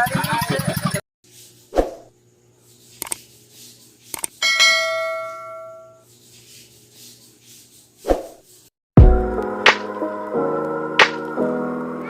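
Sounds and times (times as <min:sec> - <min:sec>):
bell-like ding: 0:04.4 - 0:06.0.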